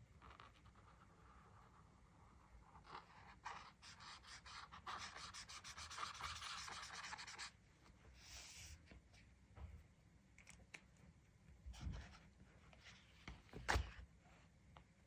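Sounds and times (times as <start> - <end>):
drawing tool rubbing on paper: 3.9 - 7.5.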